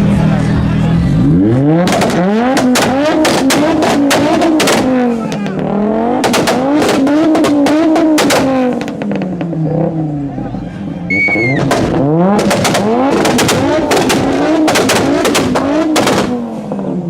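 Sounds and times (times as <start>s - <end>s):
car engine revving: 0.0s - 17.0s
exhaust cracks: 1.2s - 10.0s, 11.2s - 17.0s.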